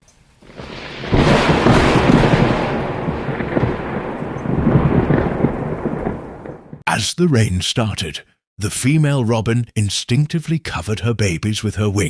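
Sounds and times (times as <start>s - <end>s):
thunder rolling and crackling: 0.3s - 6.8s.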